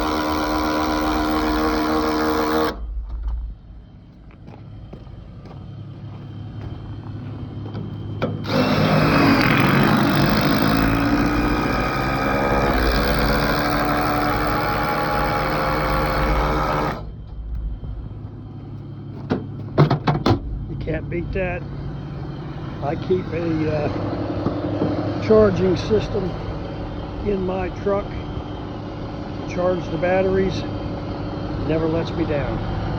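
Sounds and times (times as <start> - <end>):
impact wrench running: 0.0 - 2.9, 7.7 - 17.1.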